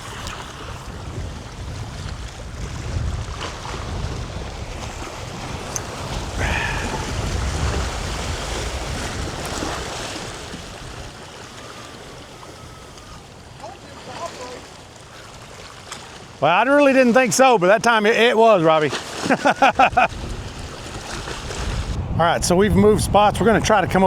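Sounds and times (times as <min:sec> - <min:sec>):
wind buffeting microphone: 0:00.0 - 0:13.6, 0:19.6 - 0:24.0
water lapping at shore: 0:00.0 - 0:22.2.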